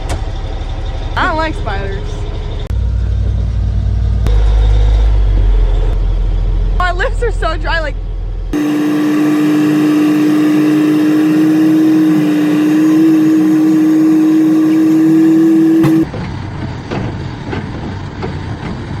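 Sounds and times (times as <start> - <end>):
truck engine running: 0.0 - 19.0
truck horn blast: 8.6 - 16.1.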